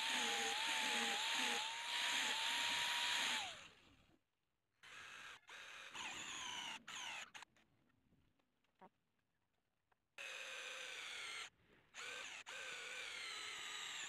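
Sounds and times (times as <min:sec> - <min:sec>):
power grinder winding down: 0:00.0 - 0:03.6
electric drill boring into metal: 0:00.0 - 0:03.7, 0:11.0 - 0:14.0.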